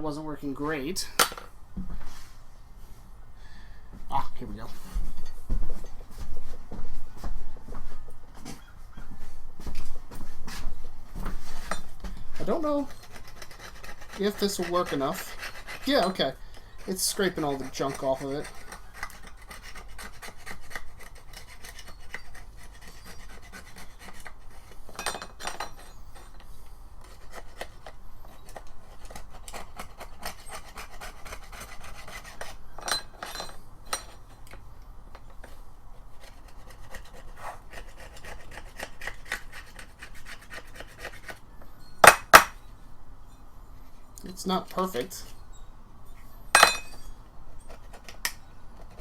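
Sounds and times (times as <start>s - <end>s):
rough rasping scraping: 11.3s - 34.5s, 35.4s - 41.5s.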